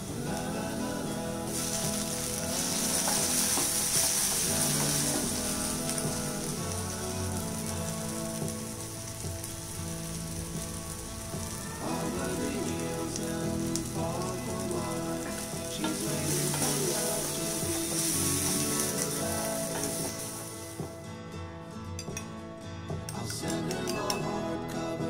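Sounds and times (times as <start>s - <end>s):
onions sizzling in oil: 0.0s - 21.1s
wooden spatula stirring: 1.4s - 20.8s.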